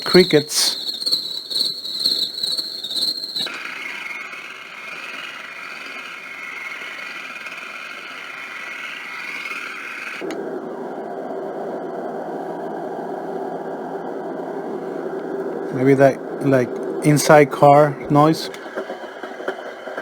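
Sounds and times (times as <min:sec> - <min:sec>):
cricket chirring: 0:00.0 - 0:10.2
steady whining hiss: 0:00.0 - 0:20.0.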